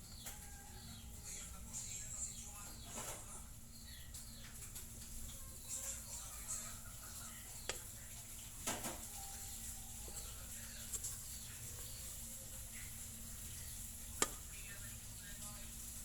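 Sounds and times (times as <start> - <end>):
steady low hum: 0.0 - 16.0
hands kneading bread dough: 5.8 - 16.0.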